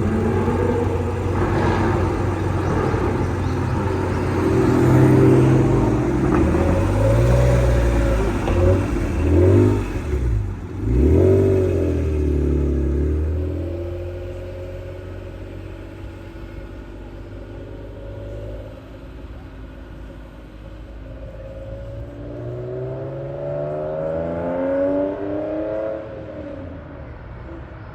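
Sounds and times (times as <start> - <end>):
sports car engine exhaust: 0.0 - 27.9.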